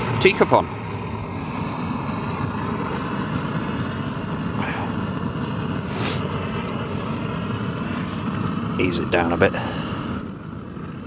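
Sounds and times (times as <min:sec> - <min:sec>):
camping stove burner rushing: 0:00.0 - 0:11.0
brief hiss: 0:05.8 - 0:06.3.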